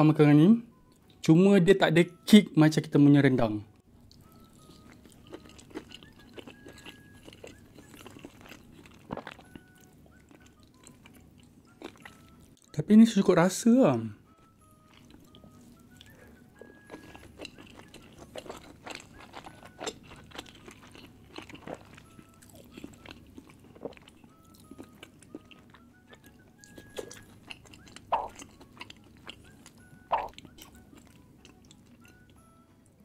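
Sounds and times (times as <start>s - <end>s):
soft background melody: 0.0s - 33.0s
chewing and biting food: 4.0s - 12.7s, 14.7s - 32.6s
mouth clicks: 28.0s - 28.4s, 30.1s - 30.4s.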